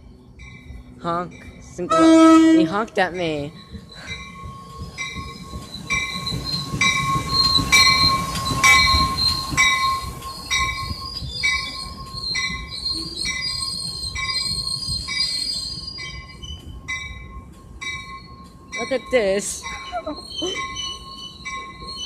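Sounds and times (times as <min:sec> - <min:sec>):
crossing warning bell ringing: 0:00.0 - 0:22.0
passenger train rumbling past: 0:00.0 - 0:22.0
high wheel squeal: 0:03.4 - 0:16.7, 0:19.6 - 0:22.0.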